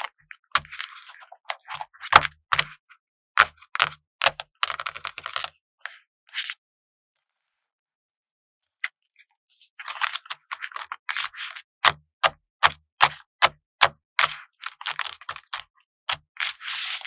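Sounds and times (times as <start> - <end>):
sharp taps on sticker sheet: 2.1 - 2.7, 3.4 - 5.2, 11.8 - 16.2
paper and plastic rustling: 9.8 - 11.6, 14.6 - 17.0.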